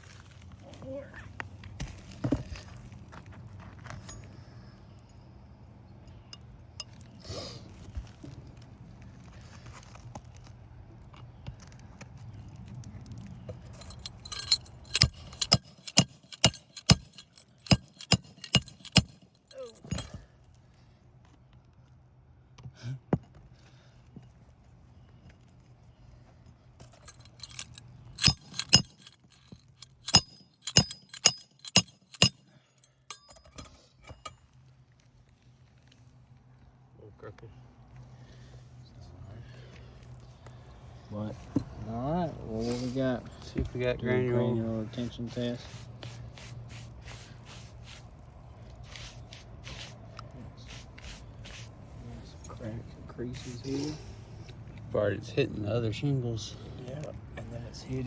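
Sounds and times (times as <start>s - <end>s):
hammer striking nails and metal: 13.7s - 20.2s, 26.8s - 34.4s.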